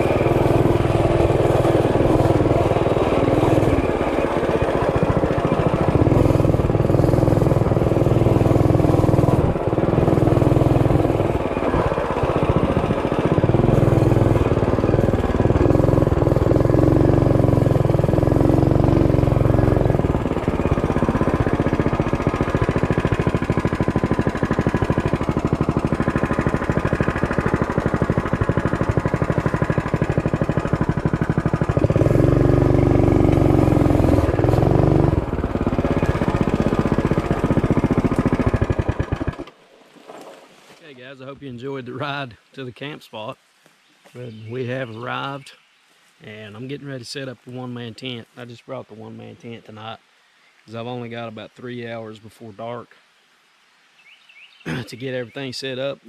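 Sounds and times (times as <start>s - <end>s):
mini bike engine running: 0.0s - 39.6s.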